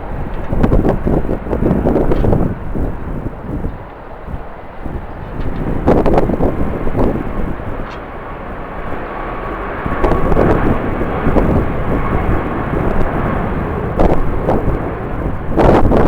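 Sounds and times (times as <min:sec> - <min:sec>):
airliner engine noise: 0:00.0 - 0:16.0
wind gusting against microphone: 0:00.0 - 0:16.0.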